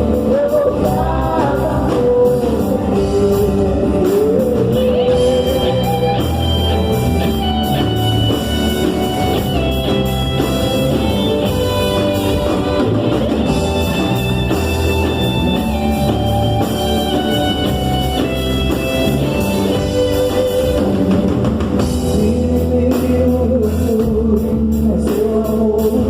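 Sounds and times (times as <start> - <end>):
higher melodic notes: 0.0 - 23.9
worship band music: 0.0 - 26.0.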